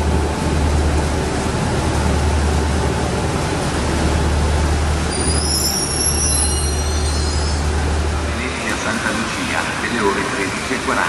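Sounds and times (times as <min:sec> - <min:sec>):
train humming and rumbling: 0:00.0 - 0:11.0
train wheels squealing on rails: 0:05.0 - 0:07.8.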